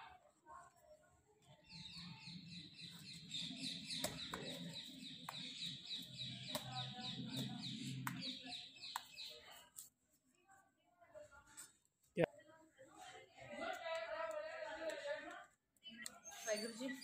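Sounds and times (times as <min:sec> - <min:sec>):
bird chirping: 0:01.5 - 0:09.6
sharp taps: 0:06.4 - 0:09.2.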